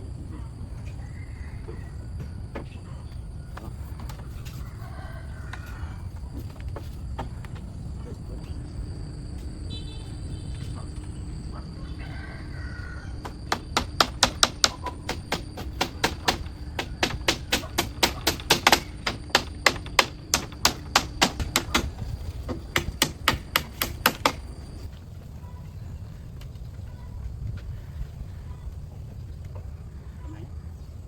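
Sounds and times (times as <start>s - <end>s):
rapid striking on wood: 13.2s - 24.9s.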